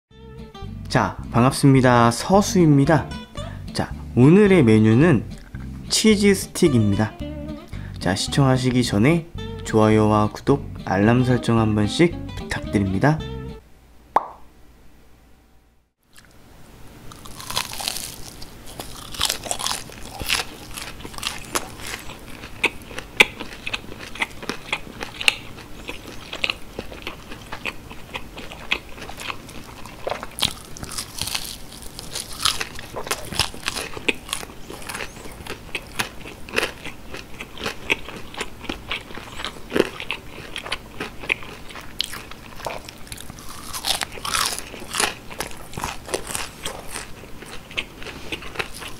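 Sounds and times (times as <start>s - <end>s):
crunchy biting and chewing: 17.1s - 48.9s.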